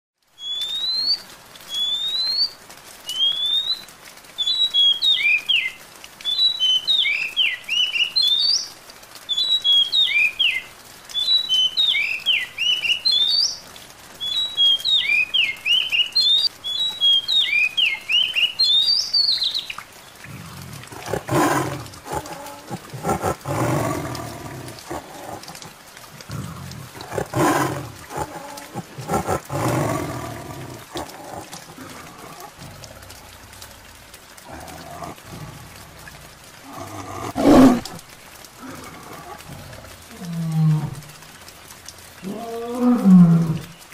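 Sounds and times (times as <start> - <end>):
songbird whistling: 0.4 - 5.7, 14.2 - 19.7
tiger growling: 20.3 - 38.0, 38.6 - 41.1.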